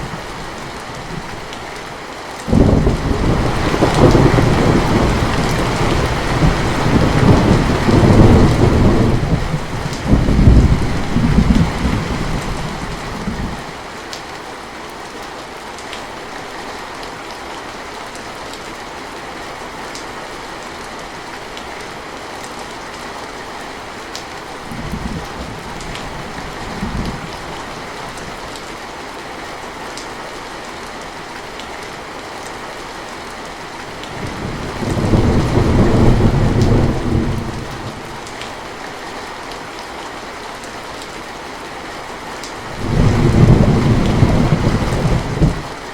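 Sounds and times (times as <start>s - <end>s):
steady rain: 0.0s - 45.9s
thunder rumbling: 2.5s - 13.6s, 34.2s - 38.0s, 42.7s - 45.8s.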